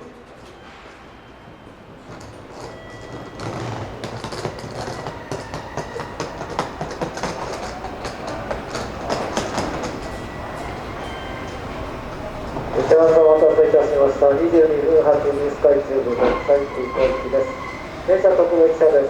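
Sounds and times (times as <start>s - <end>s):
electric train pulling in: 0.4s - 8.5s, 9.3s - 19.0s.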